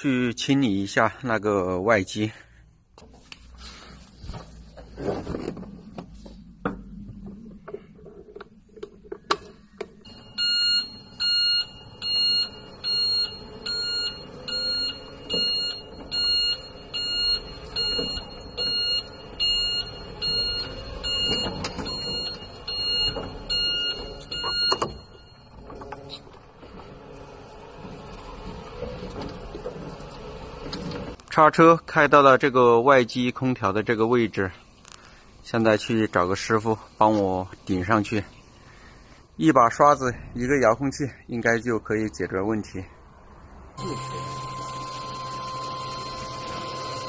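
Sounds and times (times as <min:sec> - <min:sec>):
sharp clicks and knocks: 0:05.4 - 0:10.0
forklift warning beeper: 0:10.0 - 0:26.2, 0:43.8 - 0:47.0.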